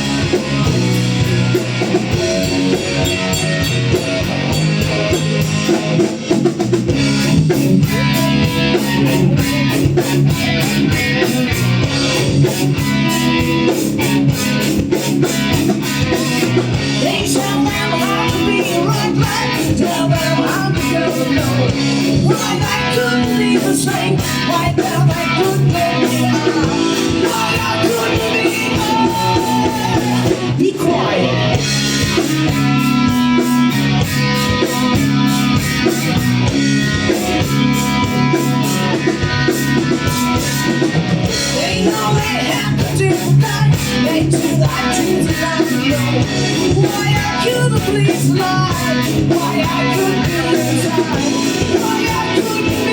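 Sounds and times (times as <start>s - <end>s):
live rock band playing: 0.0s - 52.9s
person singing: 16.9s - 31.6s, 41.4s - 52.9s.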